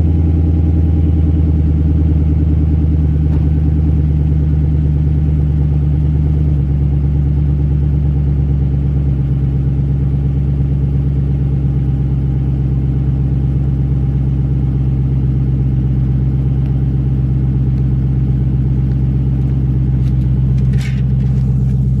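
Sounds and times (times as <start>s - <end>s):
car engine idling with deep rumble: 0.0s - 22.0s.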